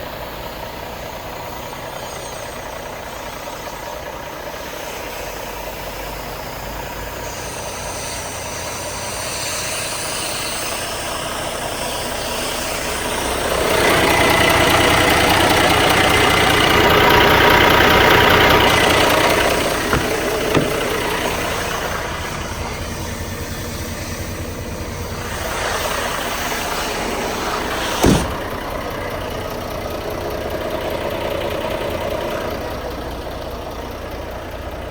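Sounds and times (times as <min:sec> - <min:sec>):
diesel truck engine idling: 0:00.0 - 0:34.9
sharp knock: 0:19.8 - 0:21.0, 0:28.0 - 0:28.5.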